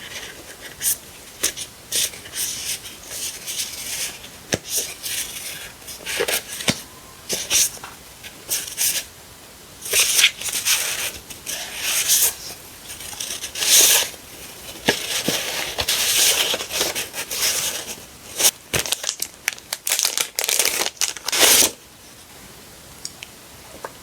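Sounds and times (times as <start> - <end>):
paper crinkling and tearing: 9.9 - 21.8.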